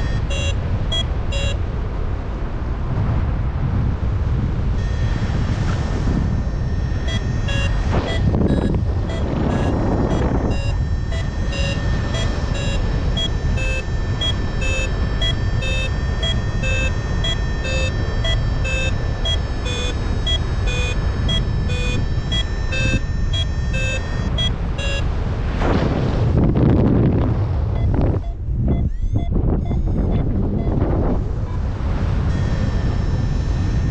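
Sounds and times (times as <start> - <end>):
variometer beeping in short pips: 0.0 - 1.6, 4.8 - 25.1, 27.8 - 30.8, 32.3 - 33.9
wind on microphone: 0.0 - 33.9.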